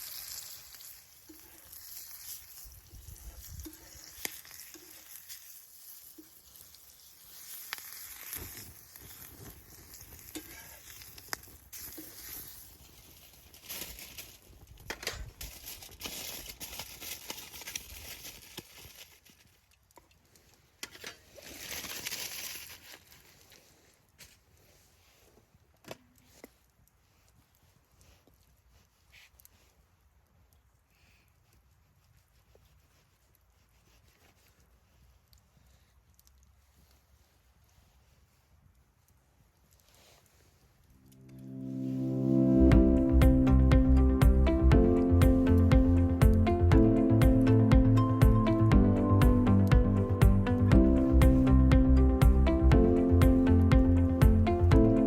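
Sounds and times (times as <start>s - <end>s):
wood fire crackling: 0.0s - 24.5s, 39.7s - 55.0s.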